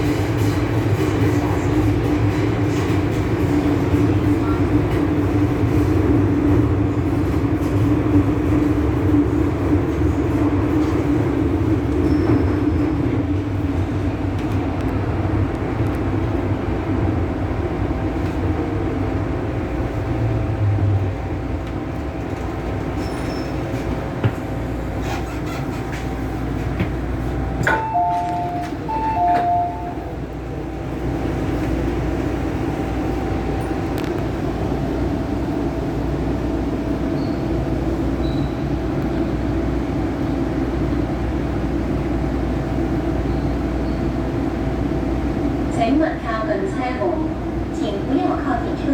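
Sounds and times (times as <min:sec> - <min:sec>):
train motors and wheels rumbling: 0:00.0 - 0:48.9
two-note electronic beep: 0:27.7 - 0:30.0.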